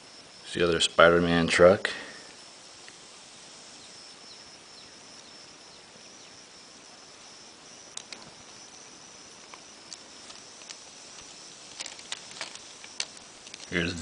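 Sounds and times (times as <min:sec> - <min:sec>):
faint high-pitched whine: 0:00.0 - 0:14.0
room hiss: 0:00.0 - 0:14.0.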